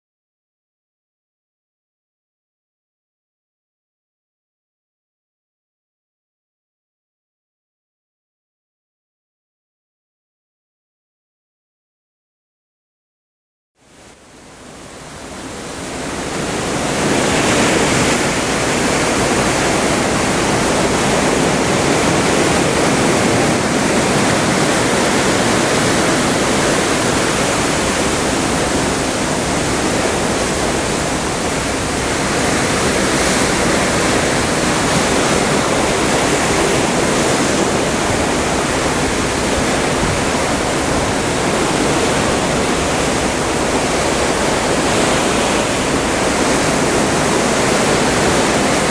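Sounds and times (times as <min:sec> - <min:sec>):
seawater rushing alongside ship: 0:13.8 - 0:48.9.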